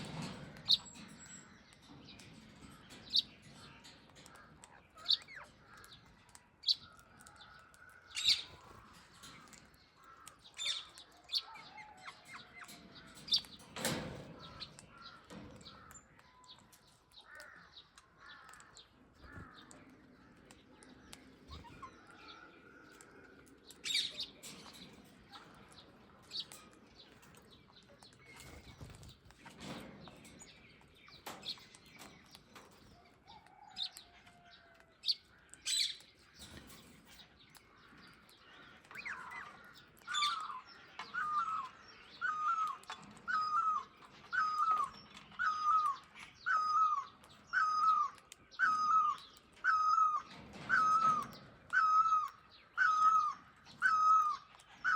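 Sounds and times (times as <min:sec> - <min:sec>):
birds chirping: 0:00.0 - 0:54.9
shrill bird calls: 0:40.1 - 0:54.9
repeated rising-and-falling bird call: 0:42.2 - 0:54.9.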